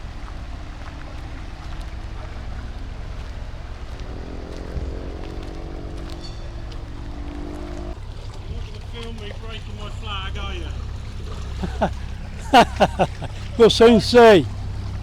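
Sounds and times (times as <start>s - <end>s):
wind rumbling on microphone: 0.0s - 9.6s
motor boat engine: 0.0s - 15.0s.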